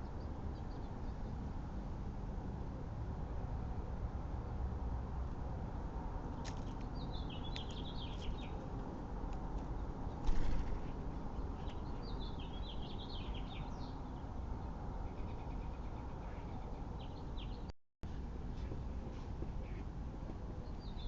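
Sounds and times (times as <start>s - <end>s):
songbirds chirping: 0.0s - 1.7s, 6.0s - 17.7s, 18.4s - 21.0s.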